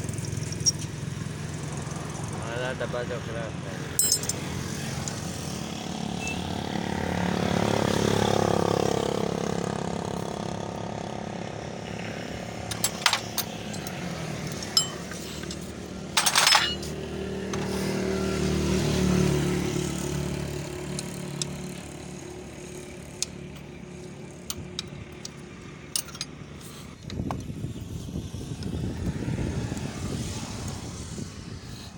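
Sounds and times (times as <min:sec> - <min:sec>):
motor vehicles passing: 0:00.0 - 0:31.9
sharp metallic clinks: 0:00.1 - 0:01.0, 0:04.0 - 0:05.2, 0:12.7 - 0:17.0, 0:25.9 - 0:26.4
tools clattering on metal: 0:04.0 - 0:04.5, 0:12.6 - 0:17.7, 0:25.9 - 0:26.4.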